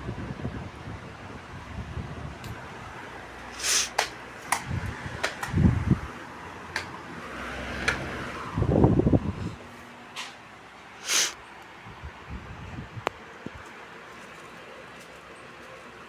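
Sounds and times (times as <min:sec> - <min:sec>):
electric fans whirring: 0:00.0 - 0:16.0
sharp fan switch clicks: 0:03.9 - 0:05.7, 0:06.7 - 0:07.0.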